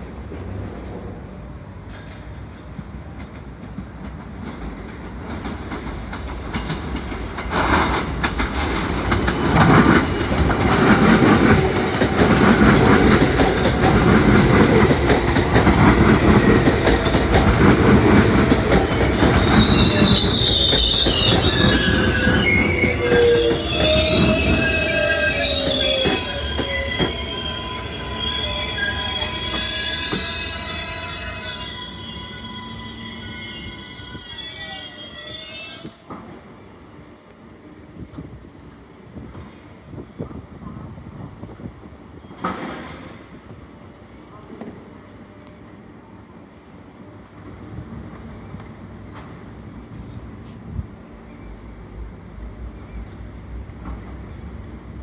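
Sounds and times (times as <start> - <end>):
subway train rumbling: 0.0 - 55.0
train wheels squealing: 9.5 - 36.3, 42.1 - 43.3, 49.9 - 51.7, 52.6 - 53.4.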